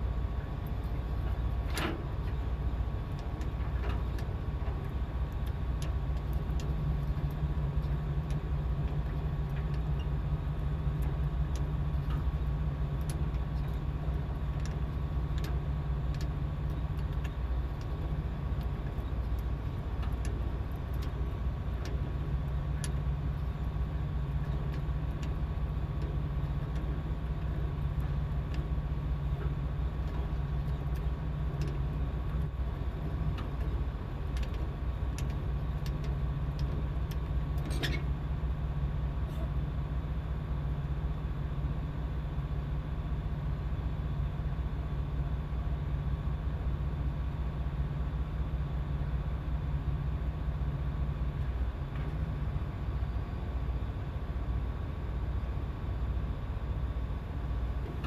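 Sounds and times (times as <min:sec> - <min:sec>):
boat engine droning: 0:00.0 - 0:58.0
faint steady whine: 0:00.0 - 0:58.0
light clicks: 0:33.2 - 0:38.1.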